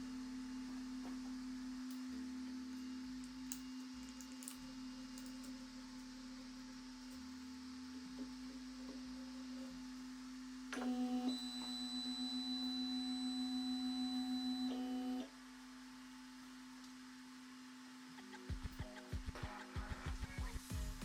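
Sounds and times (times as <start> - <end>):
printer electrical whine: 4.6 - 15.4.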